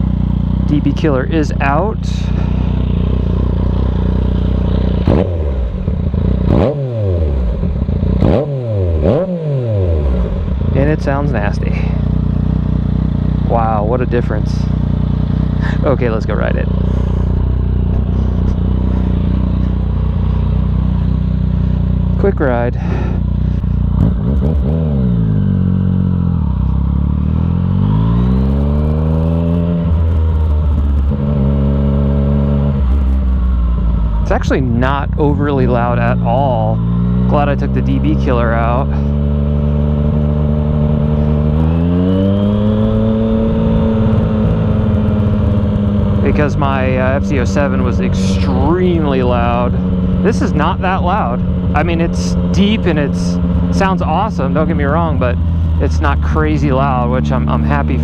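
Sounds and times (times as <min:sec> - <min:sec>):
motorcycle engine idling and revving: 0:00.0 - 0:58.0.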